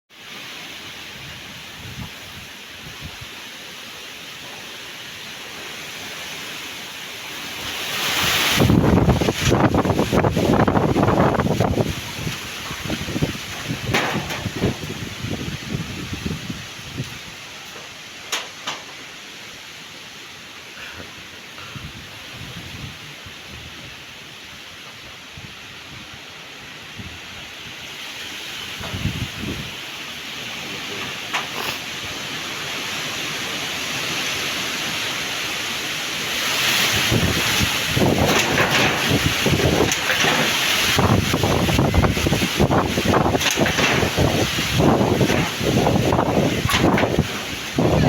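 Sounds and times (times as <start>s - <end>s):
wind buffeting microphone: 1.0s - 3.4s, 7.6s - 17.9s, 21.6s - 32.3s, 36.5s - 48.0s
strong wind gusting: 1.0s - 3.6s, 7.4s - 18.1s, 21.0s - 48.0s.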